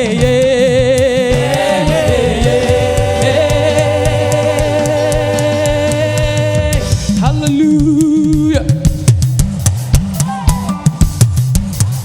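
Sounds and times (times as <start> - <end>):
repeating bass line: 0.0 - 11.8
choir singing sustained note: 1.4 - 6.6.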